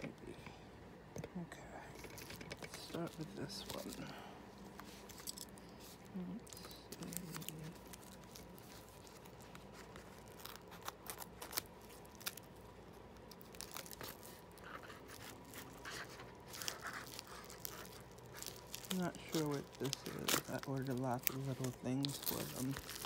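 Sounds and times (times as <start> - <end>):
packaging tearing and crinkling: 2.0 - 4.2, 6.0 - 23.0.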